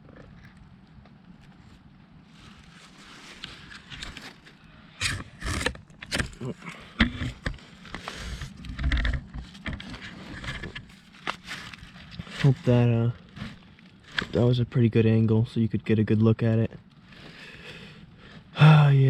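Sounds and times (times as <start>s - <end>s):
camera handling rustling: 7.0s - 12.3s.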